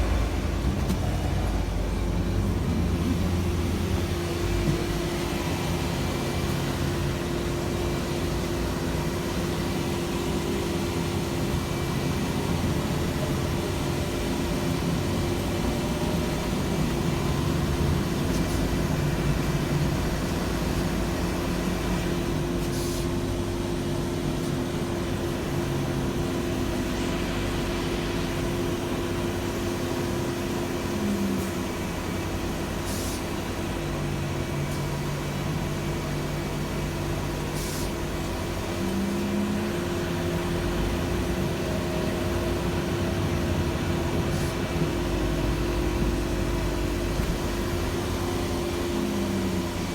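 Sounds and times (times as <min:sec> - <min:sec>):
bus engine drone: 0:00.0 - 0:49.9
road rumble: 0:00.0 - 0:49.9.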